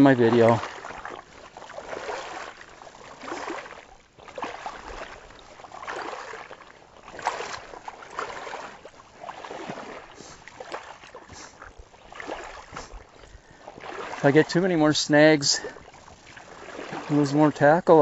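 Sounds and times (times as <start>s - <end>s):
water splashing and swishing: 0.0s - 18.0s.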